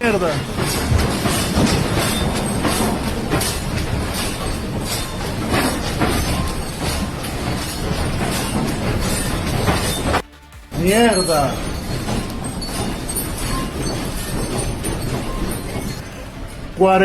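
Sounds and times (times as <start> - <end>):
heavy building rumble: 0.0 - 17.0
household things rattling: 0.0 - 17.0.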